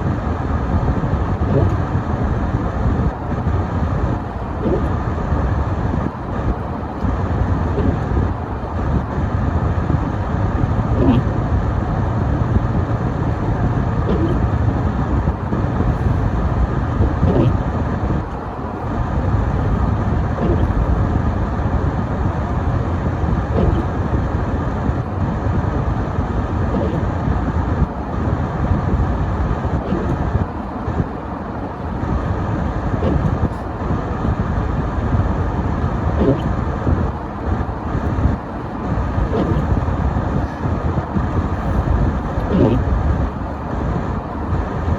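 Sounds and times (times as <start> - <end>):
car engine and tyre noise on snow: 0.0 - 44.9.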